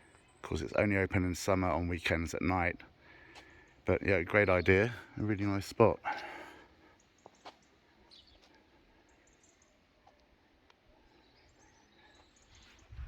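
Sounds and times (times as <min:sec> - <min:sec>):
faint bird chirps: 0:06.9 - 0:13.0.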